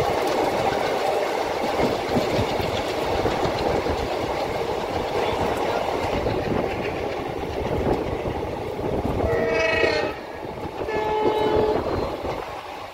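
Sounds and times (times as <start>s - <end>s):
train rumbling along track: 0.0s - 12.9s
locomotive horn blasts: 9.2s - 12.2s.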